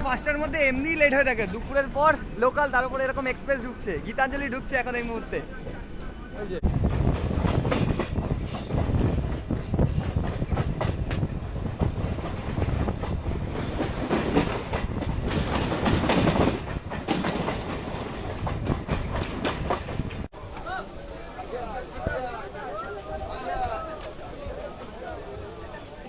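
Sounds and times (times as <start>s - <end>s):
train passing on adjacent track: 0.0s - 26.0s
train wheels clattering: 6.8s - 20.3s.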